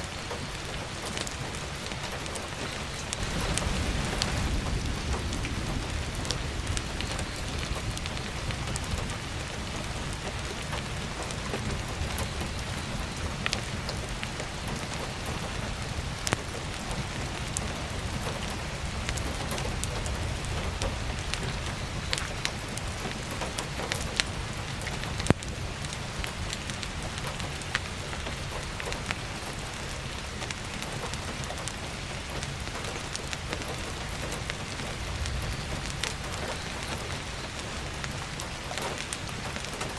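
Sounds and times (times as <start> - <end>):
firewood crackling: 0.0 - 39.9
heavy rain: 0.0 - 39.9
low rumble: 3.1 - 23.1.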